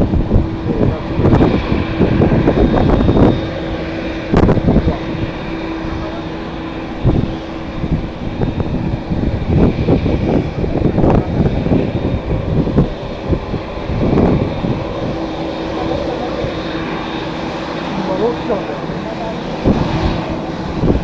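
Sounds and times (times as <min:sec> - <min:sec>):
jet airliner engines: 0:00.0 - 0:21.0
wind buffeting microphone: 0:00.0 - 0:21.0.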